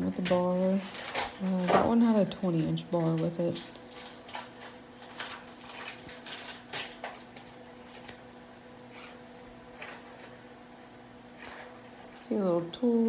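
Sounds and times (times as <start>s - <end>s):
faint steady hum: 0.0s - 13.0s
packaging rustling and clicks: 0.8s - 8.2s.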